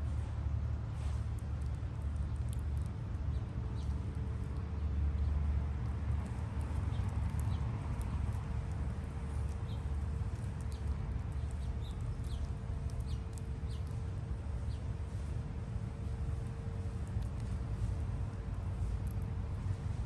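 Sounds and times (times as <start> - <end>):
faint steady hum: 0.0 - 20.0
steady low rumble: 0.0 - 20.0
small birds chirping: 6.3 - 8.4, 9.1 - 14.0, 14.6 - 14.9.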